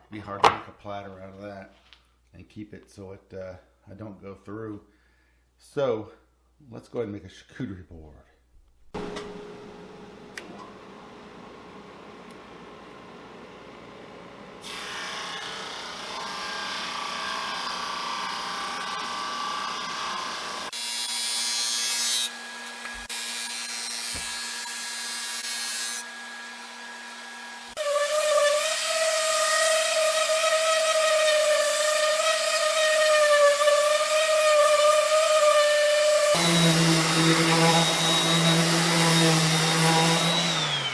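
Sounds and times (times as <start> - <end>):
woodworking power tools running: 9.0 - 40.9.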